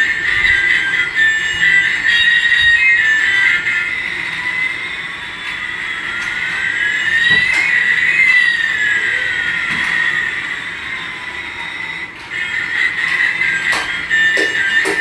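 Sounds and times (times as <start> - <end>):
electronic toy tones sweeping: 0.0 - 15.0.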